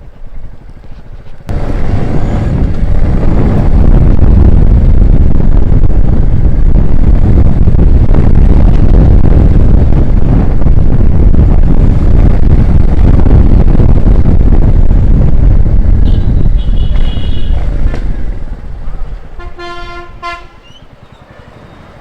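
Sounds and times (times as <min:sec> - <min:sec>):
motorcycle engine running: 0:00.0 - 0:21.0
wind buffeting microphone: 0:00.0 - 0:22.0
vehicle horn honking: 0:16.0 - 0:17.7, 0:19.4 - 0:20.8.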